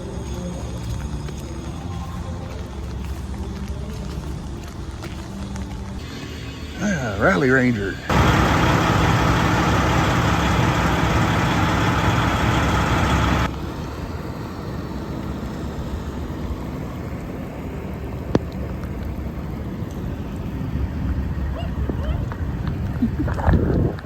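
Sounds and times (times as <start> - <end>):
diesel engine idling: 6.0 - 21.0.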